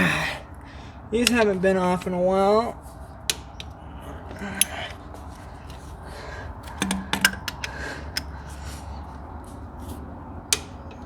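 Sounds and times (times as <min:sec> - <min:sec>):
metal tools clicking: 0:01.2 - 0:02.5, 0:03.2 - 0:08.6.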